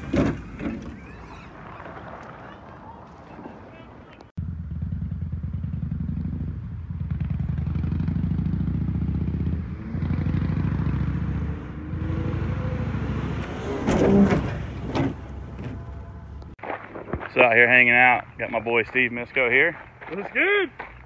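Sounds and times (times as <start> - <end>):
engine rattling burst: 4.4 - 16.6
car engine running: 11.2 - 16.6.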